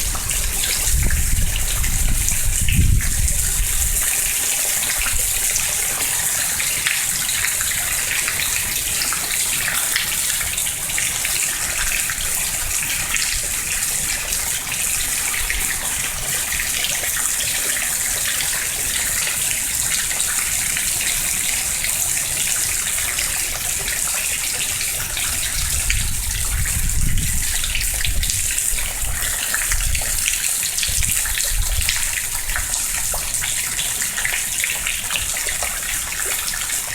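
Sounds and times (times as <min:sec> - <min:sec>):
wind gusting on microphone: 0:00.0 - 0:05.6, 0:25.0 - 0:33.5
heavy rain splashing: 0:00.0 - 0:36.9.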